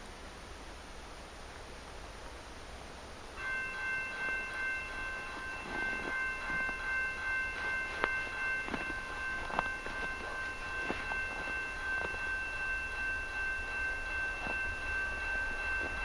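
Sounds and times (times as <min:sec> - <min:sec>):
steady high tones: 0:03.4 - 0:16.0.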